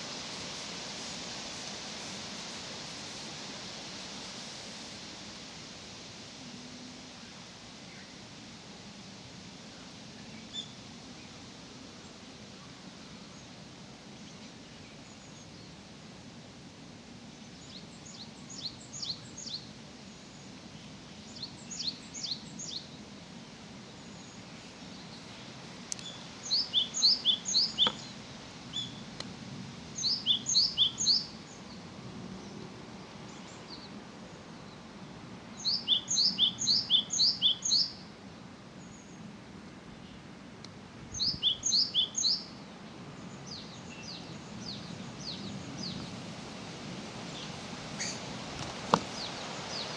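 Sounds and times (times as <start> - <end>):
songbird singing: 6.6 - 8.2, 9.6 - 16.0, 17.2 - 46.4, 47.2 - 49.9.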